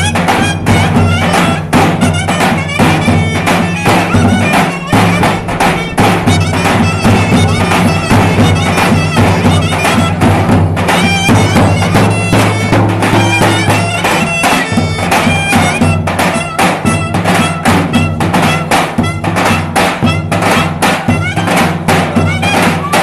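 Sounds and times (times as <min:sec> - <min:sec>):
drumbeats: 0:00.0 - 0:23.0
reedy wind instrument melody: 0:00.0 - 0:23.0
low drone: 0:00.6 - 0:16.2.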